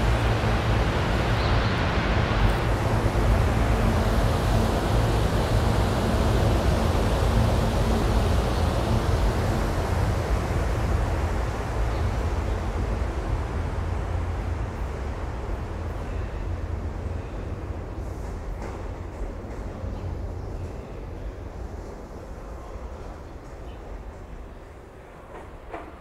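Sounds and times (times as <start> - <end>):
low hum: 0.0 - 17.3
train wheels rumbling on rail: 0.0 - 26.0.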